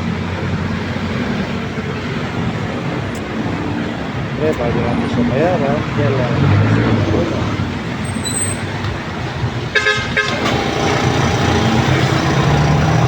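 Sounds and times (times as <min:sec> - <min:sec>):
vehicle horn toot: 0:09.7 - 0:10.6.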